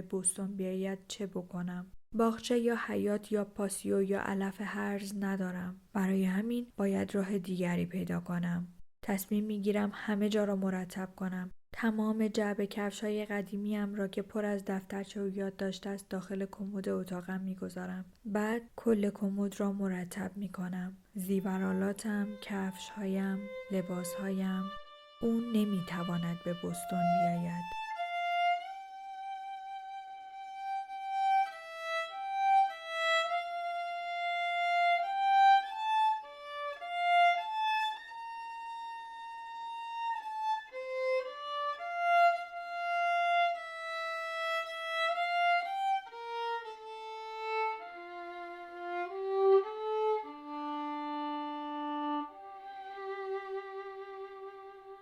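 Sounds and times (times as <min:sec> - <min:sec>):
solo violin slow melody: 0:21.4 - 0:55.0.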